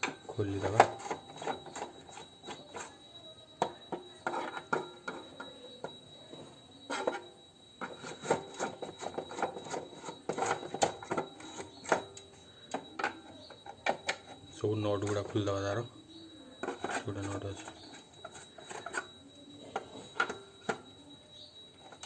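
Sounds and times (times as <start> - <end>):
screwdriver scraping and clicking: 6.9 - 14.4, 16.6 - 19.1.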